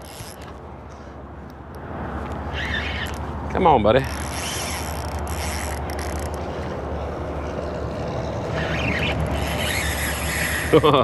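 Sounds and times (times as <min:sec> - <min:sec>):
fishing reel cranking: 0:00.0 - 0:00.5, 0:04.0 - 0:06.8, 0:07.4 - 0:11.0.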